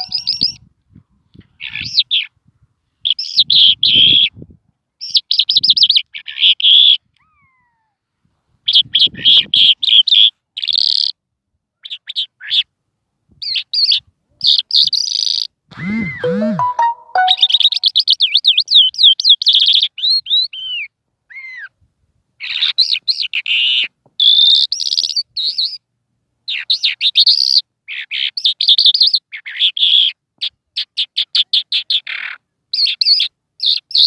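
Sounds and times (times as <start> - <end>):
lark singing trills: 0.0 - 0.4.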